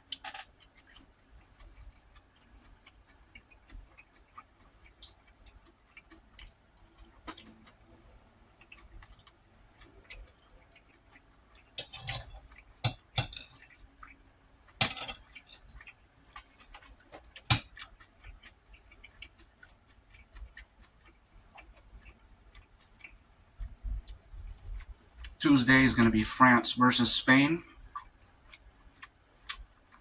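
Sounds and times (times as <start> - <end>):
chewing and mouth sounds: 0.0 - 25.4, 27.6 - 30.0
utensil clinking on a plate: 11.8 - 13.7, 14.8 - 15.8.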